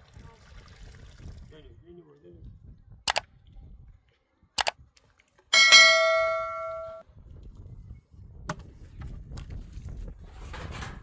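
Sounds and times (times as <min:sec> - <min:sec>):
sharp clicks: 0:03.1 - 0:03.3
bell-like metallic strike: 0:05.6 - 0:07.0.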